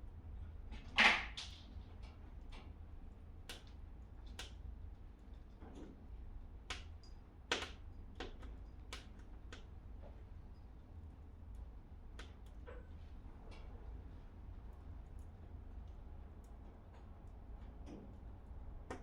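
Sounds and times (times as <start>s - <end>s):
wood fire crackling and popping: 0.7s - 13.7s.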